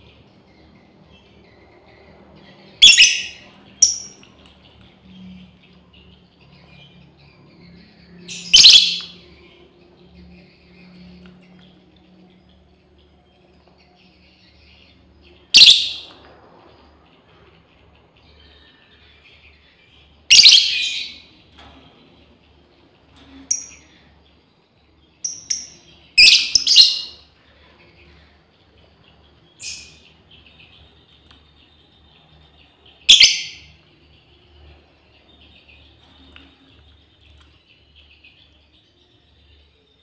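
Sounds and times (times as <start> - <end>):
lovebird shrill calls: 2.8 - 4.2, 8.3 - 9.2, 15.6 - 16.1, 20.3 - 21.1, 25.3 - 27.2, 33.1 - 33.7.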